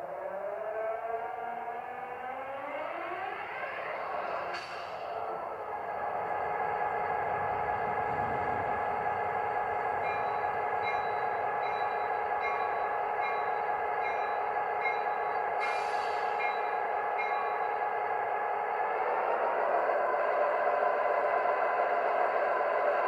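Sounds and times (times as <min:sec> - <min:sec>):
diesel locomotive engine drone: 0:00.0 - 0:23.0
air hiss: 0:15.6 - 0:16.4.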